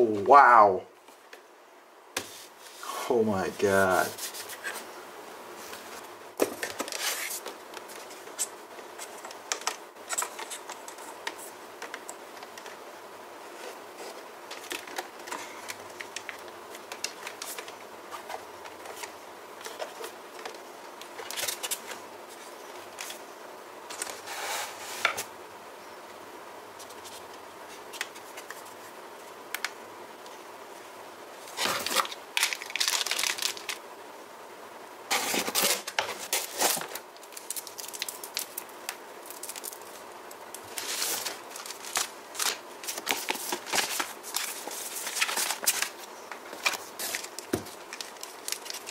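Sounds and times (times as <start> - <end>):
packaging rustling and crinkling: 13.6 - 23.2, 31.4 - 33.8, 35.1 - 48.9.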